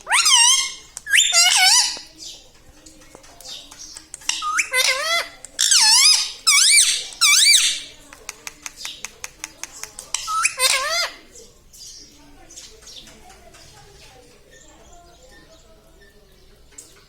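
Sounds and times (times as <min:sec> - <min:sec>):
parrot squeaky calls: 0:00.0 - 0:02.1, 0:04.2 - 0:07.9, 0:10.1 - 0:11.2
parrot clicks: 0:00.9 - 0:02.1, 0:08.1 - 0:10.6.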